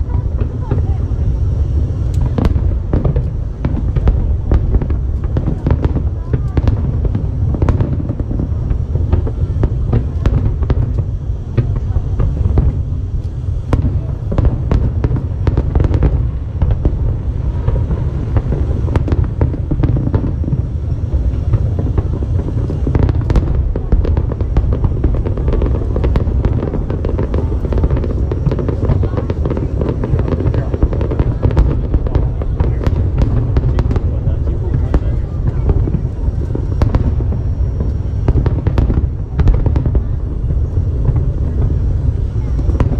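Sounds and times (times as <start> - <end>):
fireworks cracks and crackles: 0.0 - 42.9
fireworks low booms: 0.0 - 42.9.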